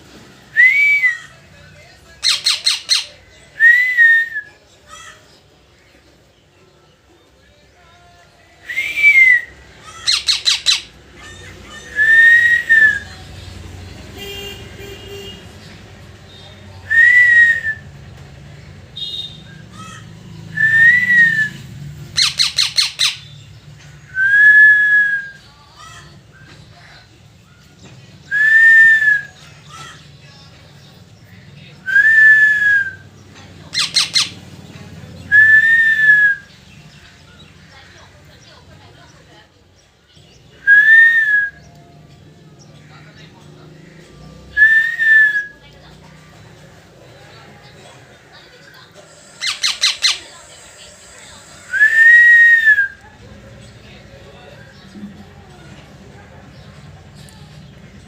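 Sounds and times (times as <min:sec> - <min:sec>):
soft small bird calls: 0:02.1 - 0:03.6, 0:09.6 - 0:12.2, 0:21.5 - 0:24.2, 0:33.0 - 0:35.3, 0:46.7 - 0:51.7
parrot chirps: 0:02.2 - 0:03.2, 0:09.8 - 0:12.3, 0:22.0 - 0:23.4, 0:33.7 - 0:34.5, 0:48.9 - 0:52.2
parrot whistling calls: 0:02.2 - 0:04.4, 0:08.7 - 0:13.1, 0:19.5 - 0:23.4, 0:33.7 - 0:34.4, 0:49.0 - 0:53.0.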